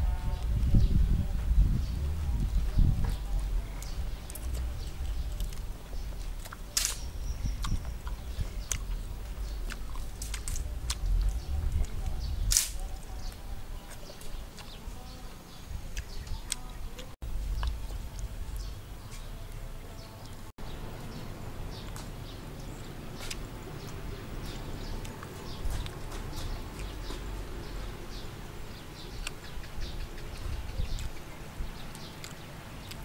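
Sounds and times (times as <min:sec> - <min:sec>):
low rumble: 0:00.0 - 0:13.8
chewing and crunching: 0:02.2 - 0:19.3, 0:21.8 - 0:28.2, 0:30.9 - 0:33.0
sharp clicks and smacks: 0:06.4 - 0:08.9, 0:09.7 - 0:12.8
loud cracks: 0:06.8 - 0:07.1, 0:12.5 - 0:12.8.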